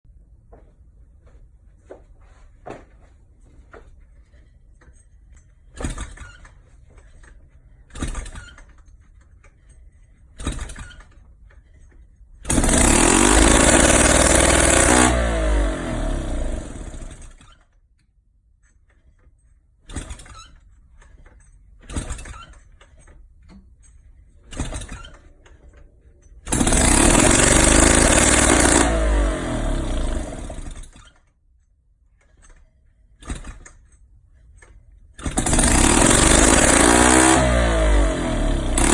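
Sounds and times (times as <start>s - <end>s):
moped engine starting and running: 12.5s - 17.6s, 21.8s - 22.6s, 24.4s - 31.2s, 33.2s - 33.9s, 35.2s - 38.9s.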